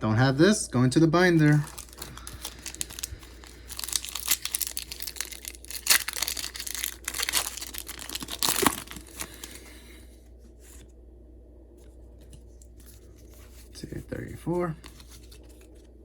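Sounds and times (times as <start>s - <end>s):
foil wrapper crinkling and tearing: 1.3s - 9.8s.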